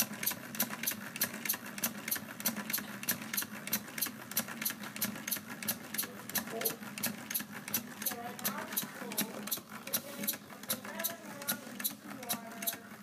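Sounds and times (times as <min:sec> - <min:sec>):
pneumatic engine clicking: 0:00.0 - 0:13.0.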